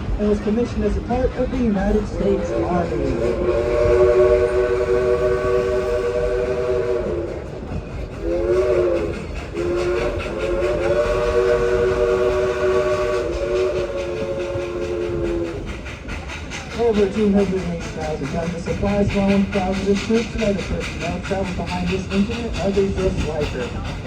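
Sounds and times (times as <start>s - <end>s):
steam whistle chord: 3.2s - 7.3s, 8.2s - 15.4s.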